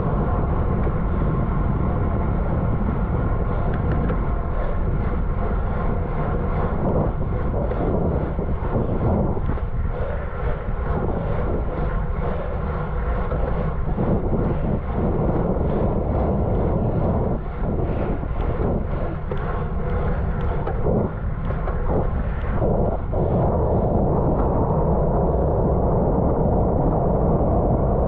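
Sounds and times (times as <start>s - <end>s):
bicycle tyre noise: 0.0s - 28.0s
wind rushing: 0.0s - 28.0s.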